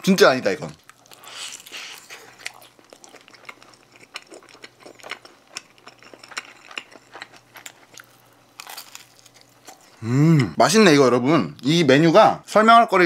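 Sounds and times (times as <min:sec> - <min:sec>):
crunchy chewing: 0:00.8 - 0:10.0.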